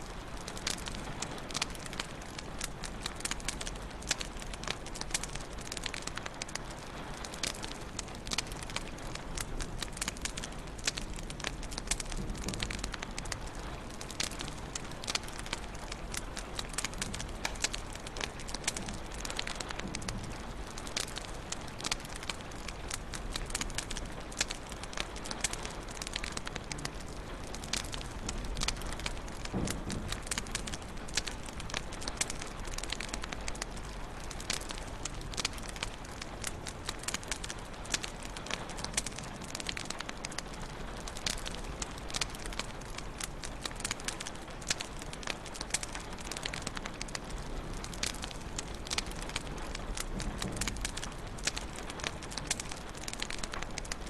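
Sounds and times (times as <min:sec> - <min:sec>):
low fire hiss: 0:00.0 - 0:54.0
wood fire crackling and popping: 0:00.0 - 0:54.0
small snaps: 0:36.9 - 0:54.0.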